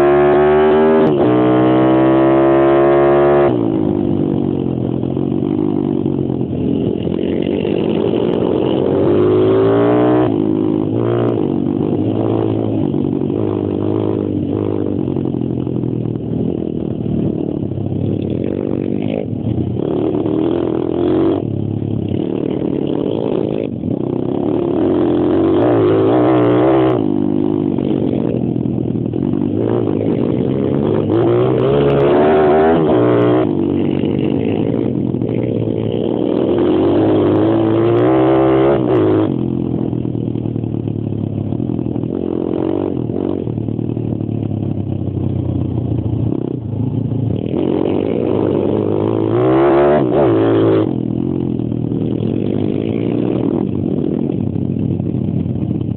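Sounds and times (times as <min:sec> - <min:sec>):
small motorcycle engine revving: 0:00.0 - 0:15.8, 0:18.4 - 0:40.0, 0:47.3 - 0:54.6.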